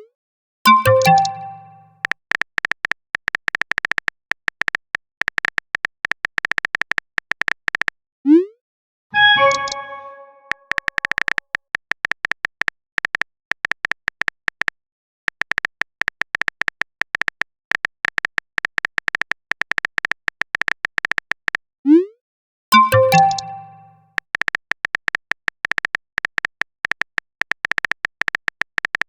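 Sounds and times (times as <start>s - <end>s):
message notification chime: 0.7s - 1.9s, 9.2s - 10.6s, 22.8s - 24.0s
phone keyboard typing clicks: 0.7s - 7.9s, 22.8s - 29.0s.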